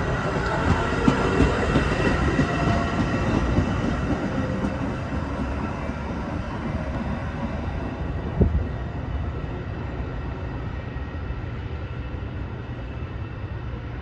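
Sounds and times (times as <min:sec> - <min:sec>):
train wheels clicking: 0:00.0 - 0:07.1
diesel train running on rails: 0:00.0 - 0:14.0.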